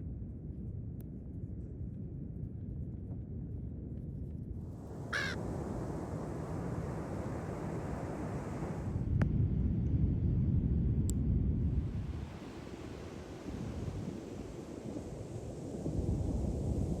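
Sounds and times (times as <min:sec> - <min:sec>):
wind and surf rumble: 0:04.7 - 0:17.0
raven call: 0:05.1 - 0:05.4.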